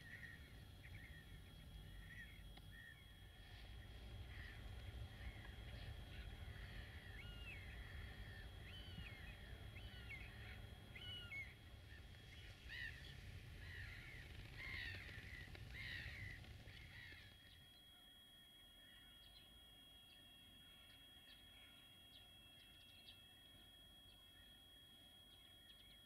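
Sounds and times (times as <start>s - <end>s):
low steady rumble: 0.0s - 17.6s
birds calling faintly: 0.0s - 26.0s.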